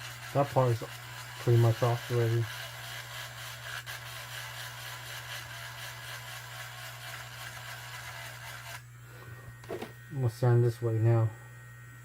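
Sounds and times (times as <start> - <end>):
sanding head rasping: 0.0 - 8.7
sander motor hum: 0.0 - 12.0.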